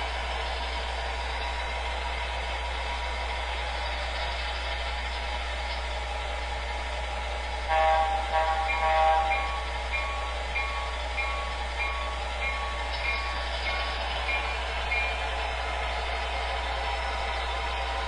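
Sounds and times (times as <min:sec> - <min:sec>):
low hum of idling engine: 0:00.0 - 0:18.0
model locomotive horn blast: 0:07.7 - 0:09.7
locomotive bell ringing: 0:07.7 - 0:15.4.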